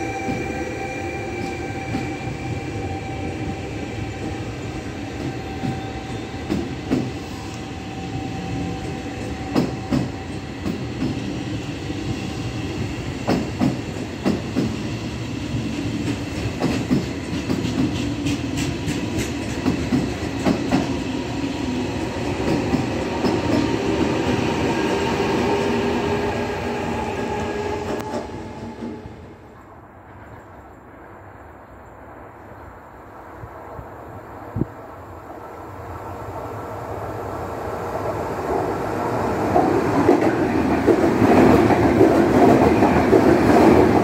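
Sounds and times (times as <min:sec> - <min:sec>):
train running rumble with whine: 0:00.0 - 0:33.1
train wheels clicking over rail joints: 0:05.2 - 0:07.3, 0:08.8 - 0:11.3, 0:13.1 - 0:14.9, 0:15.9 - 0:21.0, 0:22.0 - 0:24.1.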